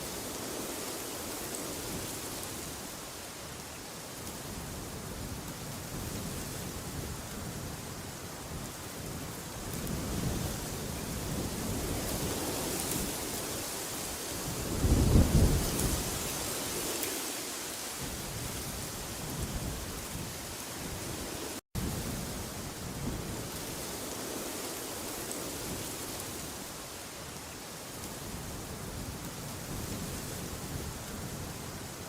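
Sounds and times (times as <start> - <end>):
rushing wind: 0.0 - 32.0.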